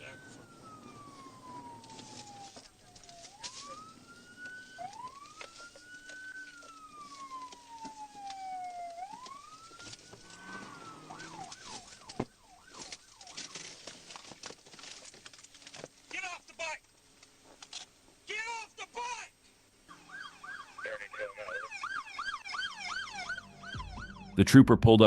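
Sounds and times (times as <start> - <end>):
police siren wailing and yelping: 0.0 - 13.7, 19.9 - 24.4.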